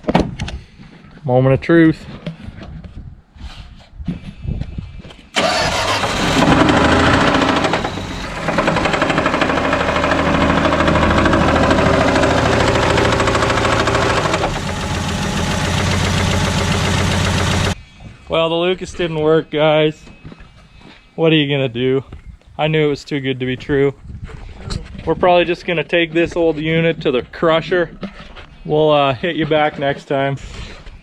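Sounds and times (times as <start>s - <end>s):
car engine starting and running: 5.4s - 17.8s
engine knocking: 5.4s - 17.8s.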